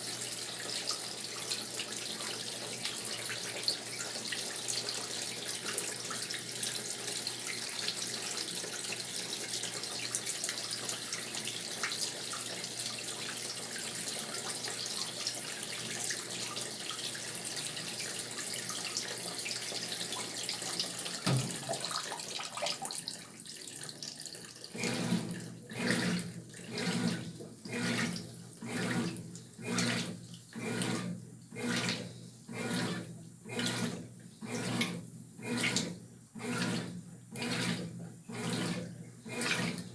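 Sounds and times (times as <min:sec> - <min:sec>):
washing machine filling with water: 0:00.0 - 0:39.9
laundry sloshing in washer: 0:19.5 - 0:23.0, 0:24.7 - 0:39.9.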